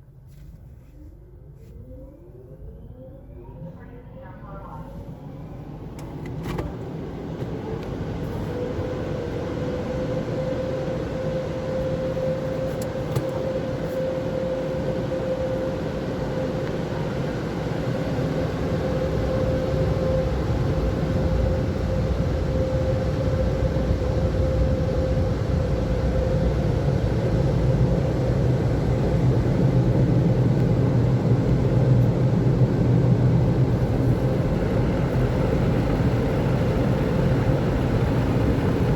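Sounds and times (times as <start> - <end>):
fan whine: 0.0 - 38.9
car wash air dryers blowing: 17.6 - 38.9.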